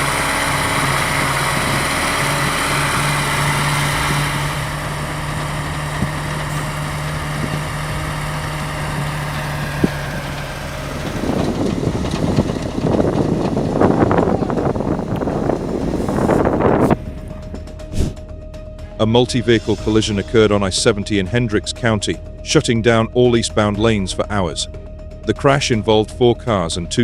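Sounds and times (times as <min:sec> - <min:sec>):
rough surging engine noise: 0:00.0 - 0:21.9
truck engine running: 0:00.0 - 0:26.8.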